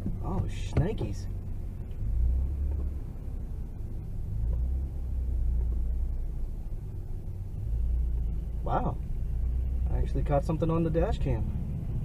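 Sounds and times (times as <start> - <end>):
car rumble from inside cabin: 0.0 - 12.0.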